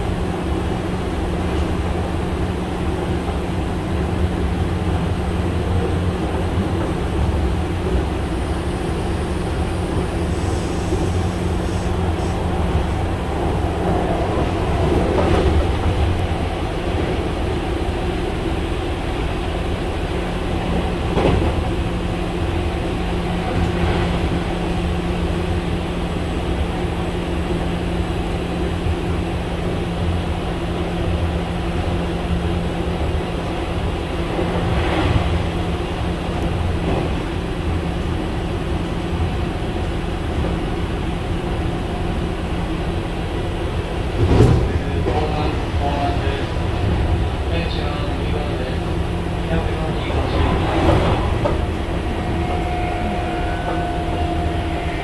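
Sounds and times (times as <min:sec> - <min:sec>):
train wheels rumbling on rails: 0:00.0 - 0:55.0
knocks from the track: 0:44.2 - 0:44.8
traction motor hum: 0:50.9 - 0:55.0.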